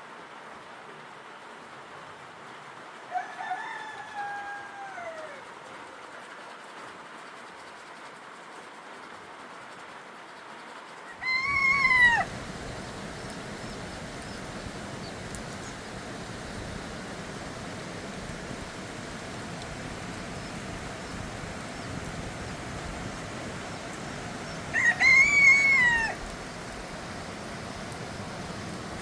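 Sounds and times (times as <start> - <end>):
steady outdoor hiss: 0.0 - 29.0
animal call: 11.1 - 12.8.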